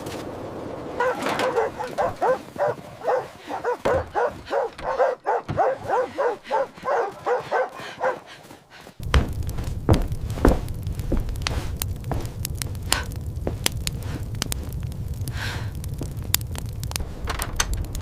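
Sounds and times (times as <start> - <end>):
dog barking rapidly: 1.0 - 8.4.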